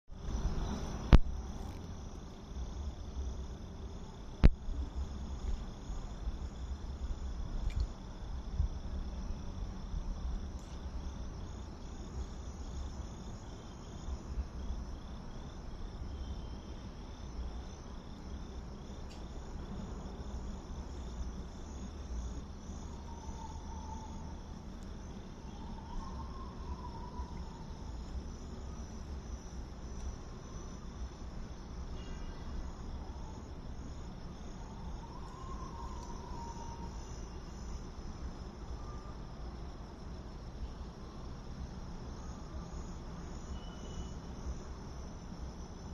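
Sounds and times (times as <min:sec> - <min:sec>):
night insects chirping: 0:00.1 - 0:45.9
faint wavering calls: 0:22.8 - 0:24.6, 0:25.2 - 0:28.9, 0:34.6 - 0:37.6.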